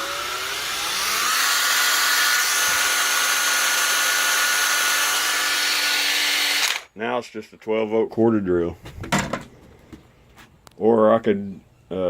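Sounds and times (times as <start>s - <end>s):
cordless drill motor whining: 0.0s - 6.9s.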